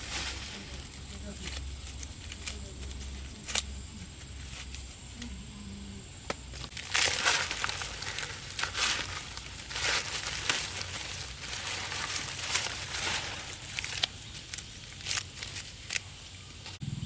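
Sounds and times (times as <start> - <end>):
plant material rustling: 0.0 - 5.6, 6.3 - 16.8.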